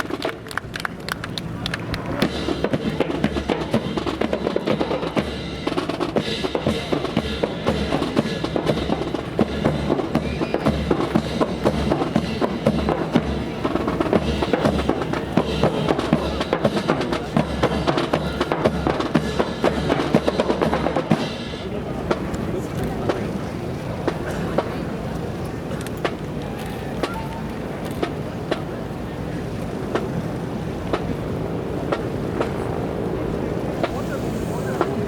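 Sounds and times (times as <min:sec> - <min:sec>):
low bass drum beat: 0:01.8 - 0:24.9
rapid drum strokes: 0:01.8 - 0:25.0, 0:29.9 - 0:35.0.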